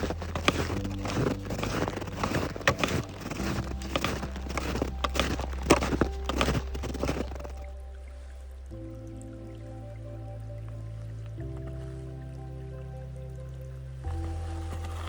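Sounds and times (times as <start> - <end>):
footsteps crunching on snow: 0.0 - 7.6
background music: 0.0 - 15.0.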